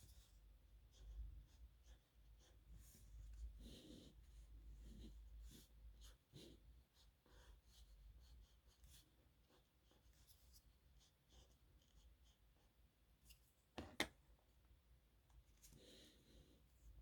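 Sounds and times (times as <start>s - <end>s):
pen scratching on paper: 0.9s - 12.7s.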